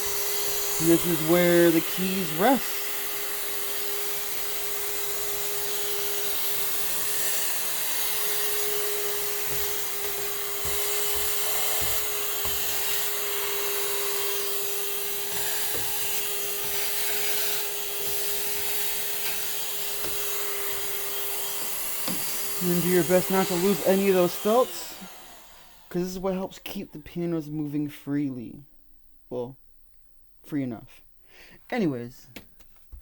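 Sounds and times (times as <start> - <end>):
steady motor whir: 0.0 - 25.9.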